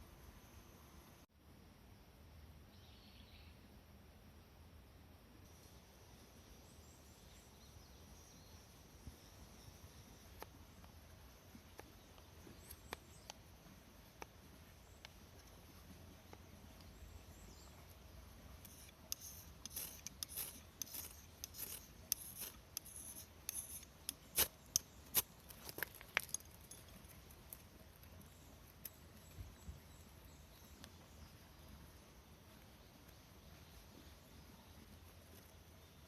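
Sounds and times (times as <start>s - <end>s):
hands handling metal objects: 18.6s - 28.2s.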